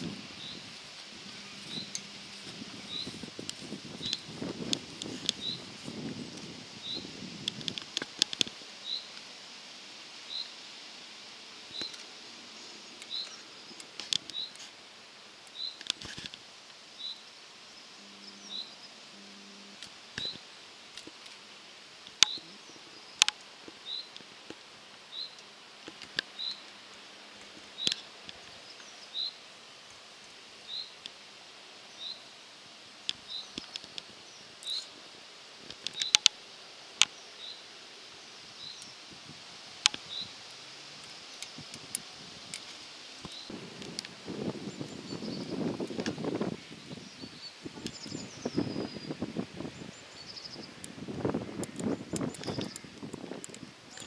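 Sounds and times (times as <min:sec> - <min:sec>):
bird chirping: 0:00.0 - 0:06.0, 0:17.0 - 0:20.4, 0:22.2 - 0:24.2, 0:33.2 - 0:35.0, 0:46.7 - 0:49.2, 0:51.6 - 0:54.0
outdoor hiss: 0:00.0 - 0:54.0
sharp clicks: 0:35.7 - 0:36.4, 0:51.6 - 0:54.0.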